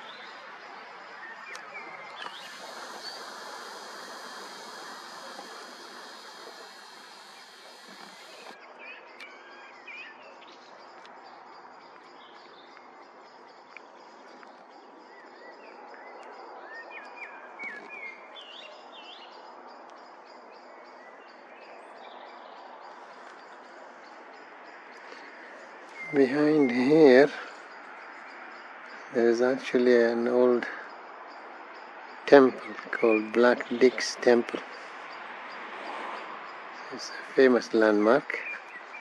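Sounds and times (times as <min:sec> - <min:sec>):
outdoor background hiss: 0:00.0 - 0:39.0
small birds chirping: 0:00.0 - 0:39.0.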